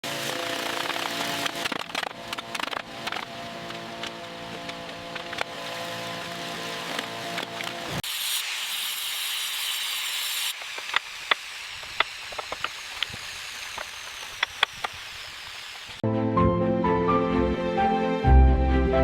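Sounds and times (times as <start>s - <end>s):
sharp clicks and ticks: 0.6s - 5.5s
steady hiss: 8.0s - 16.0s.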